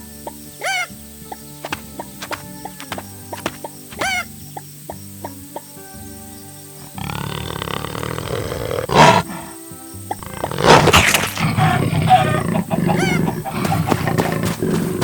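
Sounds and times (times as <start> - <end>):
background music: 0.0 - 15.0
loud animal calls: 1.6 - 4.3, 6.8 - 15.0.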